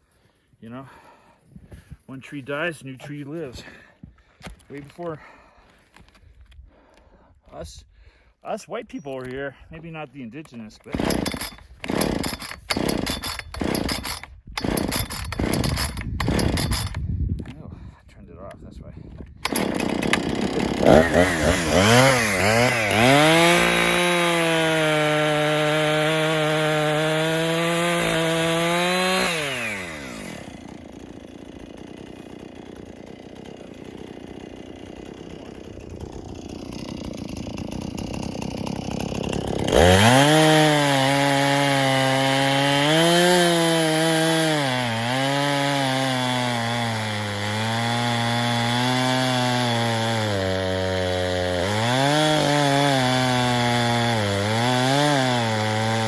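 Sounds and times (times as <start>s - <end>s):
chainsaw cutting wood: 10.5s - 17.5s, 19.2s - 56.0s.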